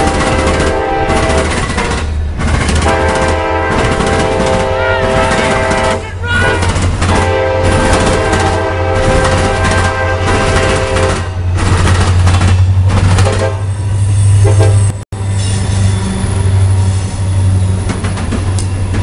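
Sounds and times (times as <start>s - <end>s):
train horn: 0.0s - 2.0s, 2.8s - 11.3s, 13.2s - 17.1s
train wheels clattering: 0.0s - 13.6s, 16.7s - 19.0s
diesel locomotive engines rumbling: 0.0s - 19.0s.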